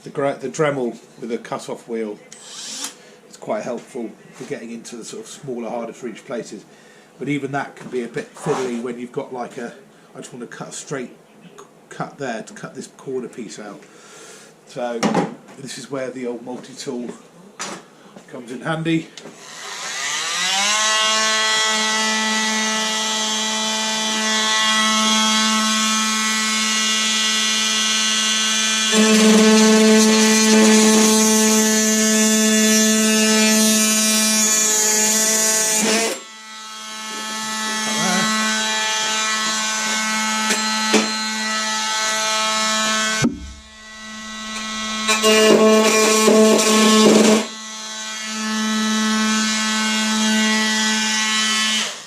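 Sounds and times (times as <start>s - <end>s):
oscillating multi-tool cutting steel: 2.4s - 3.0s, 19.4s - 52.0s.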